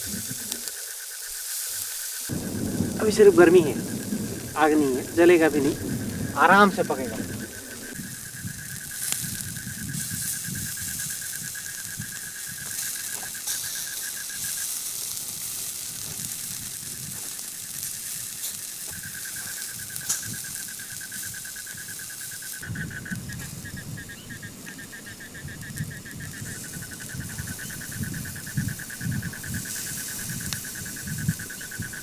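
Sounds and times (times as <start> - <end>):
insect trilling: 0.0 - 15.0, 17.9 - 32.0
chicken sizzling over embers: 0.0 - 32.0
fire crackles: 0.1 - 32.0
gusty low rumble: 2.3 - 8.0.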